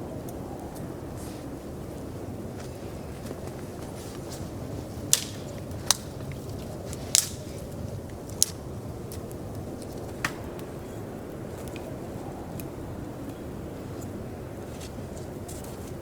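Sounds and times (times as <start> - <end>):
sharp snaps: 5.0 - 9.2.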